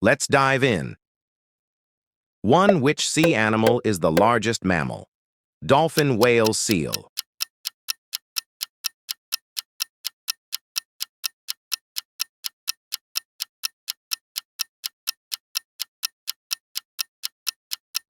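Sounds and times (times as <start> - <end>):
countdown timer ticking: 5.9 - 18.0.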